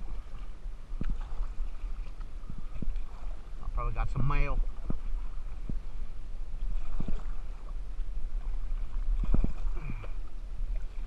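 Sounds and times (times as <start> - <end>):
kayak paddling: 0.0 - 11.0
low rumble on microphone: 0.0 - 11.0.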